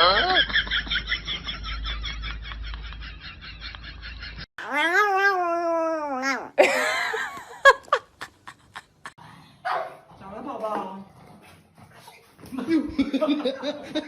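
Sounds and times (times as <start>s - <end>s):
cat yowling: 4.6s - 6.6s.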